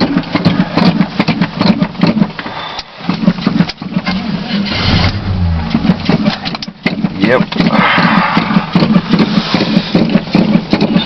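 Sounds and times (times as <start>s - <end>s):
engine cranking on starter: 3.1s - 11.0s.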